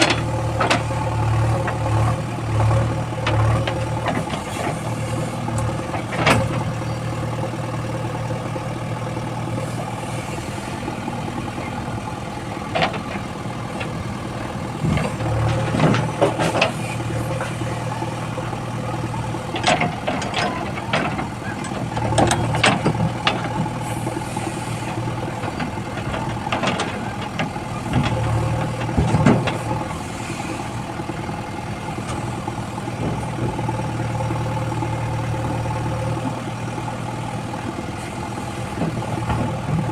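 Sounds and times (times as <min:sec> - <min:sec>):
diesel engine running: 0:00.0 - 0:39.9
metallic clanks and knocks: 0:05.5 - 0:06.8, 0:19.2 - 0:23.8, 0:25.4 - 0:29.8.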